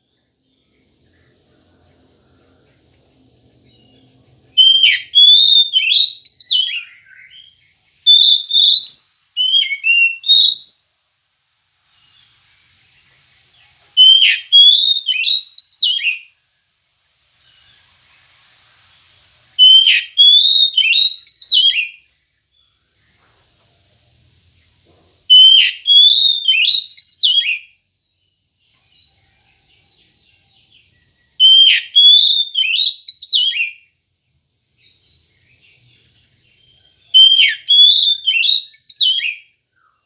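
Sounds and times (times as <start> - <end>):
bird singing whistled phrases: 3.9 - 11.0, 13.3 - 16.3, 19.6 - 22.1, 25.3 - 27.8, 30.2 - 34.0, 34.8 - 40.0.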